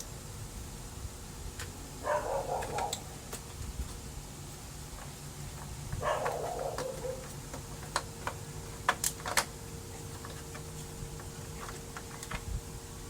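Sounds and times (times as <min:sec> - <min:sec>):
dog whining: 0:02.0 - 0:03.1, 0:06.0 - 0:07.4
small plastic parts clicking: 0:06.2 - 0:09.5.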